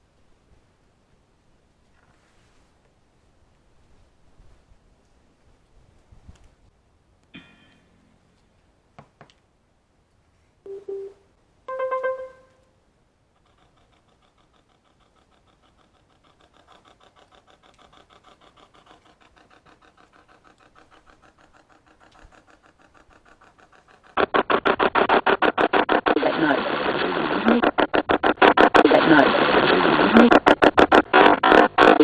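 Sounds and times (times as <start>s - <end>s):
short beeps: 10.7s - 12.6s
faint clicks: 13.4s - 26.2s
pulsing chopped radio noise: 24.1s - 32.0s.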